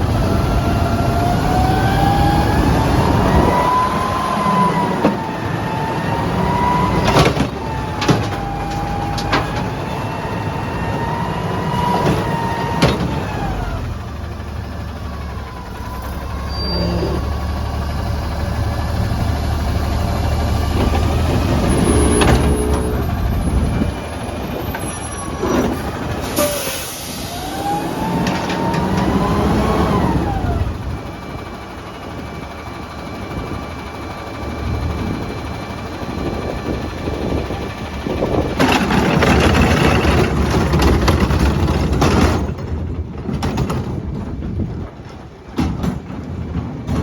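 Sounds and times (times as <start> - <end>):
truck engine revving: 0.0 - 32.4, 34.7 - 43.1
hydraulic pump whine: 20.7 - 31.0.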